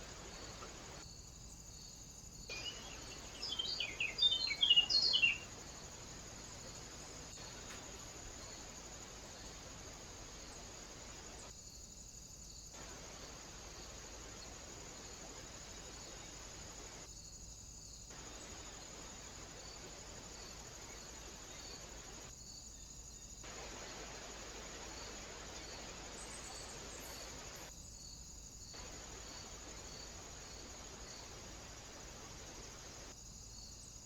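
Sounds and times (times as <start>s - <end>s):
microphone hiss: 0.0s - 34.0s.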